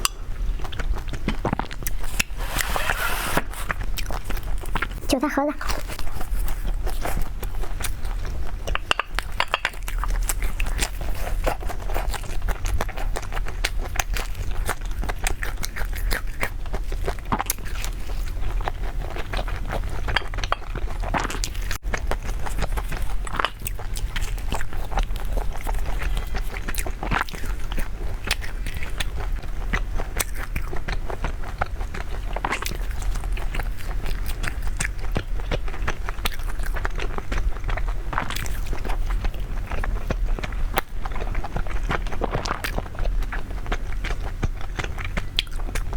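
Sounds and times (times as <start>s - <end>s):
chewing crunchy food: 0.0s - 45.9s.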